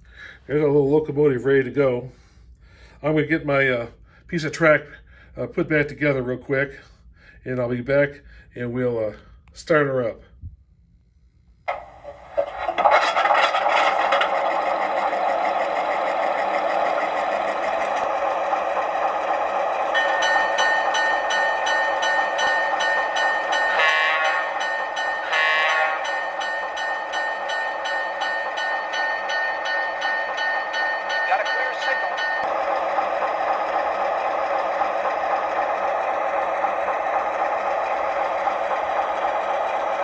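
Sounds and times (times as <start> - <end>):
model locomotive running sounds: 0.0 - 10.2, 11.5 - 40.0
fast repeating ringing: 19.9 - 35.7.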